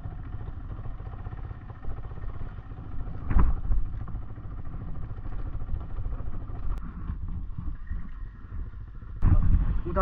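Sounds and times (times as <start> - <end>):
motorcycle engine running: 0.0 - 6.9
wind rumble on microphone: 3.0 - 10.0
thump: 3.2 - 3.8.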